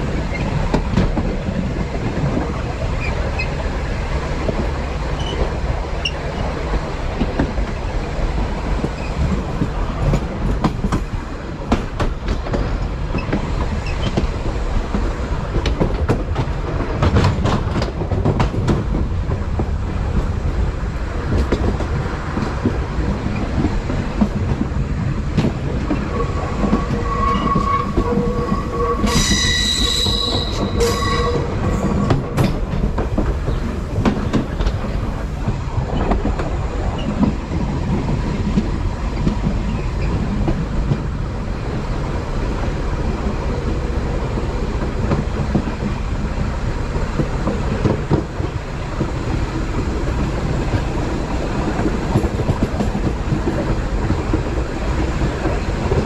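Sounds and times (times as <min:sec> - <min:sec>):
train rumble with rail clicks: 0:00.0 - 0:56.0
wheels squealing: 0:25.6 - 0:35.3.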